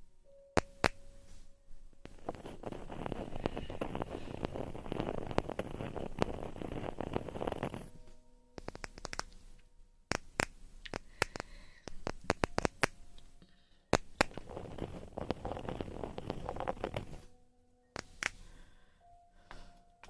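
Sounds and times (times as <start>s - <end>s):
scratchy rustling: 1.3s - 8.1s, 14.2s - 17.3s
sharp clicks and crackles: 8.6s - 9.4s, 10.1s - 13.3s, 13.9s - 17.3s.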